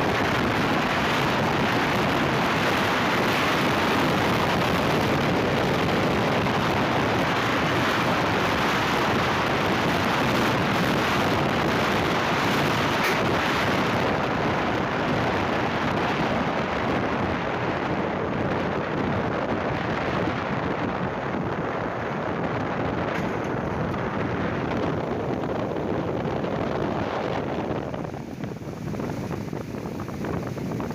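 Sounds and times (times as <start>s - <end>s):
heavy rain: 0.0s - 30.9s
wind buffeting microphone: 0.0s - 30.9s.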